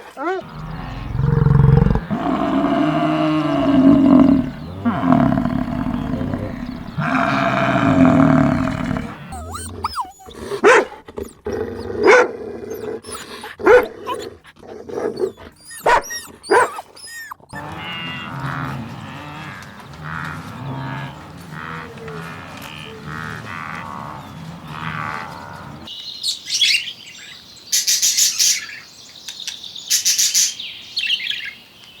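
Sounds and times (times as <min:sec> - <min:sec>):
sharp bark-like animal calls: 0:00.2 - 0:18.0
low drawn-out animal call: 0:00.4 - 0:25.9.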